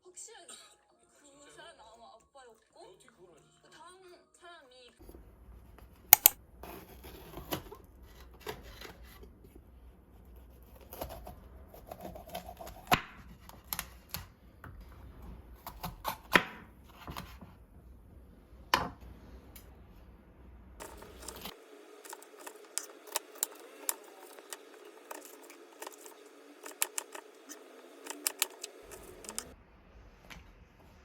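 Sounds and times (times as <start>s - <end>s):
low room hum: 5.0s - 31.0s
small objects clicking and knocking: 6.2s - 6.4s, 20.8s - 29.5s.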